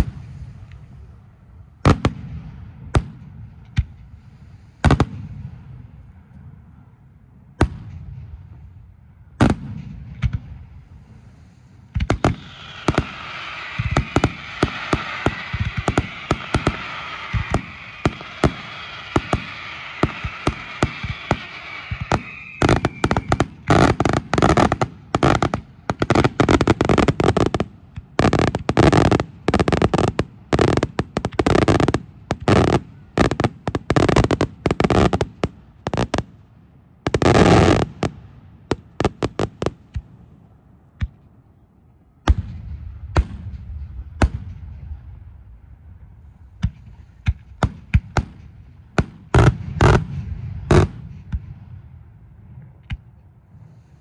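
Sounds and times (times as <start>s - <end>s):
fireworks bangs and cracks: 1.8s - 4.1s, 4.8s - 5.6s, 9.4s - 10.6s, 11.8s - 36.4s, 37.1s - 40.1s, 42.3s - 45.0s, 46.6s - 51.8s
hissing crackle: 10.9s - 36.4s.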